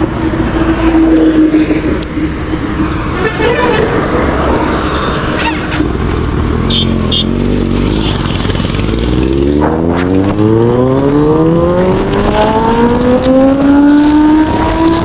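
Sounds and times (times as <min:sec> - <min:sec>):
motorcycle engine revving: 0:05.4 - 0:15.0.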